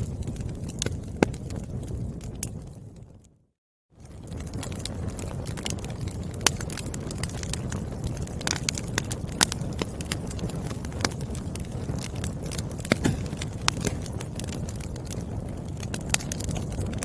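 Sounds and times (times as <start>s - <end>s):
firewood crackling: 4.0s - 17.0s
logs popping and snapping: 12.9s - 14.5s.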